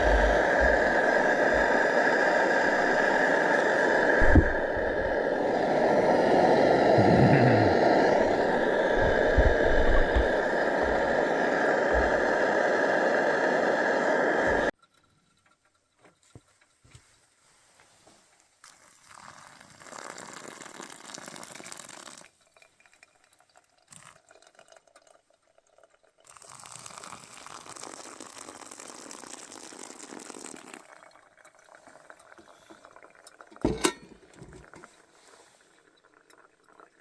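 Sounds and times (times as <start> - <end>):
water pouring and splashing: 16.2 - 37.0.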